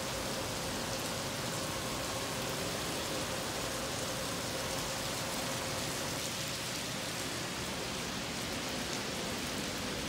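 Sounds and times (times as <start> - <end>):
heavy rain on paving and rooftops: 0.0 - 10.0.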